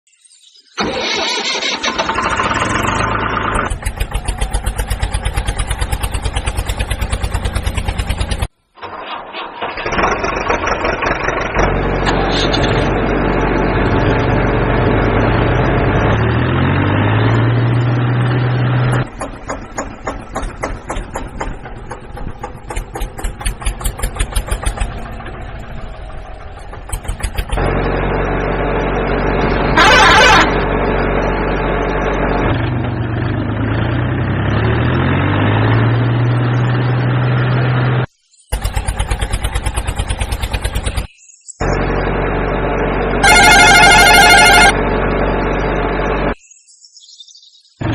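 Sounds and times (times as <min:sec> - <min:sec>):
loud engine burst: 0:00.7 - 0:46.4
tractor engine revving: 0:00.8 - 0:46.4.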